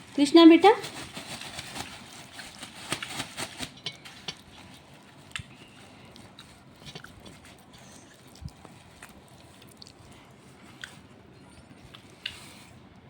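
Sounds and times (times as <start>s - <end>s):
parrot beak clicking and crunching: 0.9s - 10.0s.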